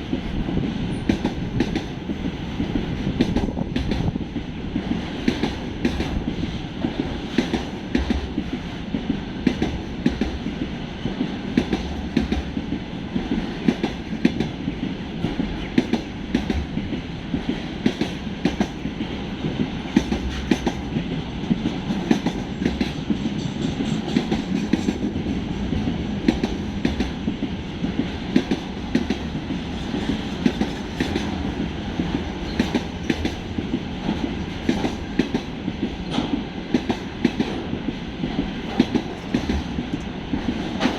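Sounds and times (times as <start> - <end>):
train rumble: 0.0 - 40.9
train wheels clickety-clack: 0.0 - 40.9.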